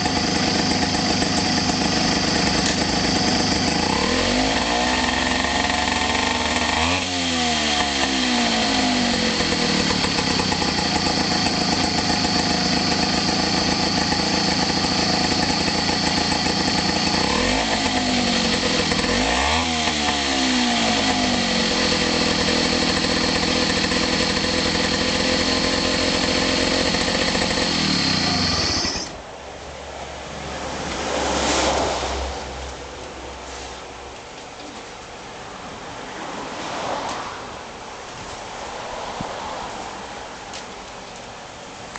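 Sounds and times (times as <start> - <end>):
outboard motor running: 0.0 - 29.2.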